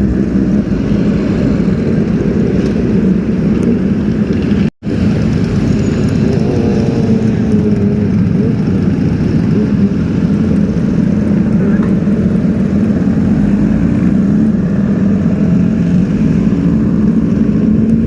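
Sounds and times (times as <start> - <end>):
motorcycle engines running: 0.0 - 18.0
street traffic noise: 0.0 - 18.0.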